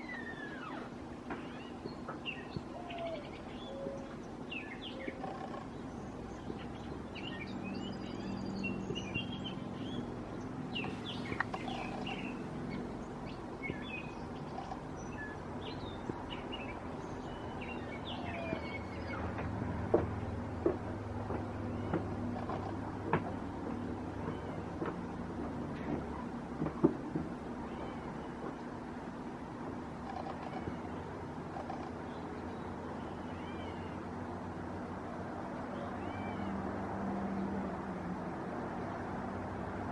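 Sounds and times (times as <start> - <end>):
small birds chirping: 0.0 - 19.5, 21.2 - 26.4, 27.6 - 28.7.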